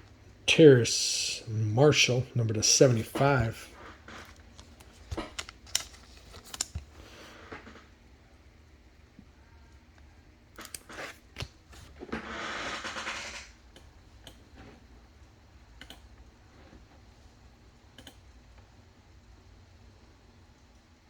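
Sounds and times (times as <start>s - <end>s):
card packs crinkling: 2.8s - 7.6s
cards ticking: 4.2s - 7.3s, 10.6s - 12.0s.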